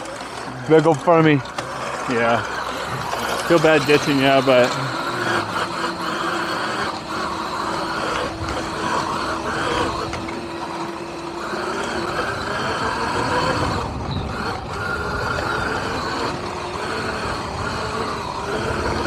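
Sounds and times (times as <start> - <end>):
electric motor whine: 0.0 - 19.0
wind noise: 12.2 - 16.7.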